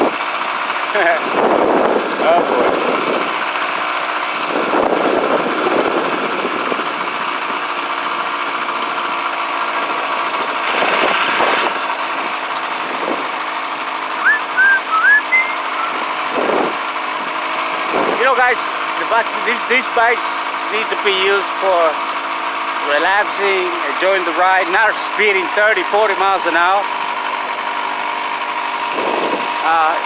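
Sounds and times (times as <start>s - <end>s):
small gasoline engine running: 0.0s - 30.0s
high rising chirps: 14.2s - 16.1s.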